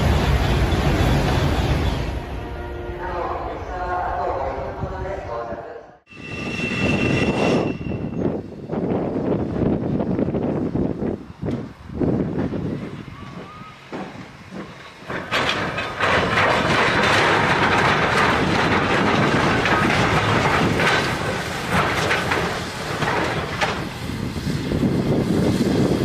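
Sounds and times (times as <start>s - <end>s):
train wheels rumbling on rails: 0.0s - 2.4s, 6.1s - 26.0s
rapid clatter of clicks: 14.5s - 23.9s.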